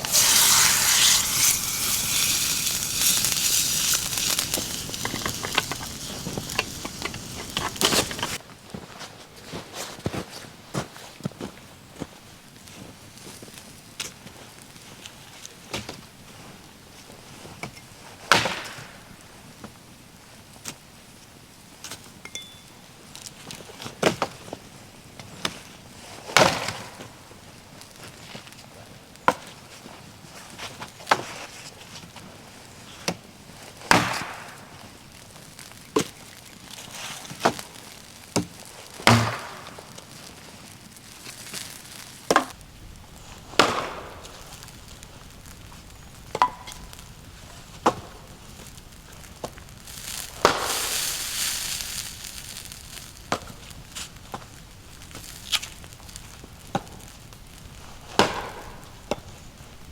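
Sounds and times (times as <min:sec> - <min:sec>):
rustling crash: 0:00.0 - 0:08.4, 0:41.1 - 0:59.9.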